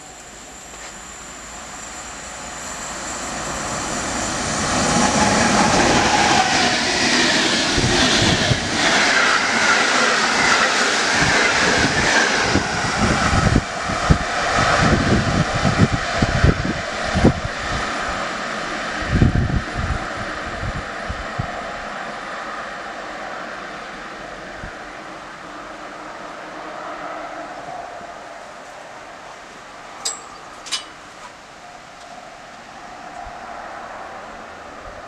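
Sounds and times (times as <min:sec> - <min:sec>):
passenger train rushing past: 0:00.0 - 0:35.0
wheels clacking over rail joints: 0:30.0 - 0:31.4.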